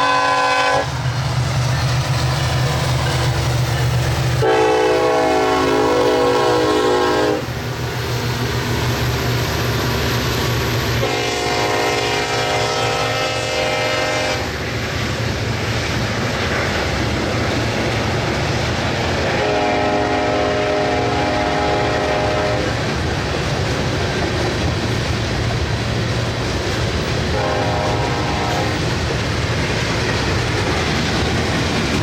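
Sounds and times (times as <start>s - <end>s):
locomotive air horn blasts: 0.0s - 0.9s, 4.4s - 7.5s, 11.0s - 14.5s, 19.2s - 22.8s, 27.3s - 28.9s
train rumbling and clattering on rails: 0.0s - 32.0s.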